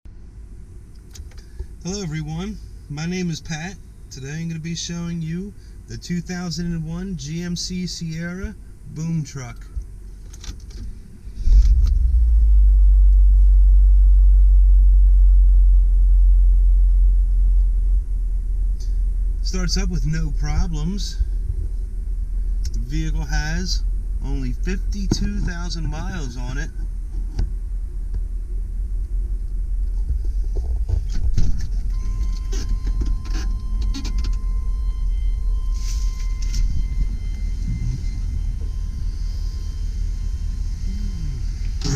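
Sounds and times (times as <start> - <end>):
truck engine starting and idling: 0.9 - 41.9
faint high tone: 31.9 - 41.9.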